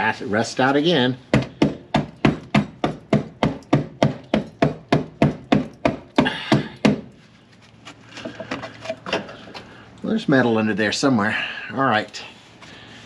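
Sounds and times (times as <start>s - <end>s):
hand tool chipping at metal: 1.3s - 7.2s.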